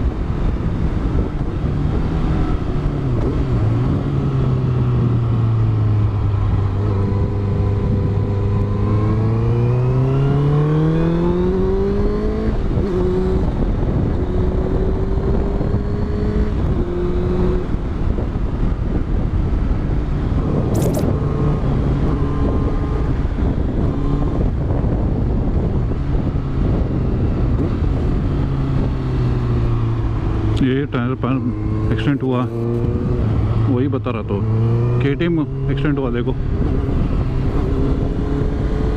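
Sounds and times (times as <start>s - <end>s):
riding wind: 0.0s - 38.9s
motorcycle engine revving: 0.5s - 18.2s, 18.8s - 38.9s
short click: 20.7s - 21.1s.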